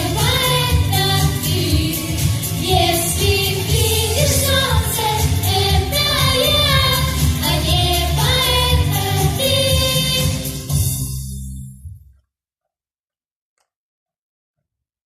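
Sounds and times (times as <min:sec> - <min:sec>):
children singing: 0:00.0 - 0:10.6
musical accompaniment: 0:00.0 - 0:11.9.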